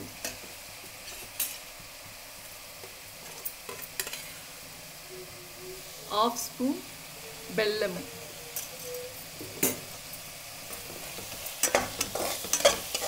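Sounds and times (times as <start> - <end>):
paste sizzling in a pan: 0.0 - 13.0
spatula scraping a pan: 10.7 - 13.0.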